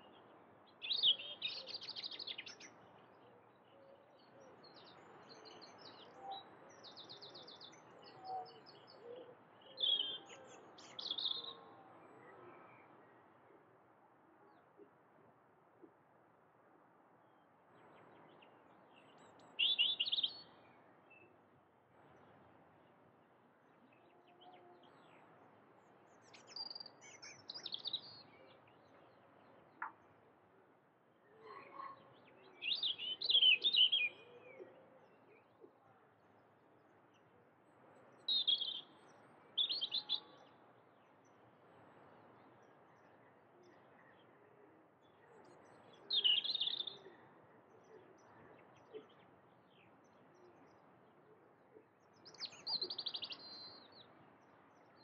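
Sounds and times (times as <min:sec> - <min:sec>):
faint background noise: 0:00.0 - 0:55.0
bird chirping: 0:17.8 - 0:21.3, 0:26.1 - 0:30.0, 0:31.4 - 0:35.5, 0:38.2 - 0:40.6, 0:45.0 - 0:50.8, 0:52.0 - 0:54.1.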